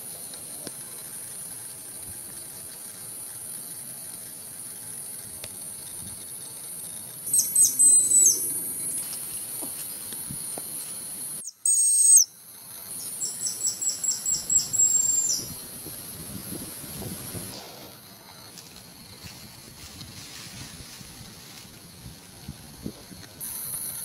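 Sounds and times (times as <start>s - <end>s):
high insect drone: 0.0s - 24.0s
high whistled bird calls: 7.3s - 9.1s, 11.4s - 15.6s.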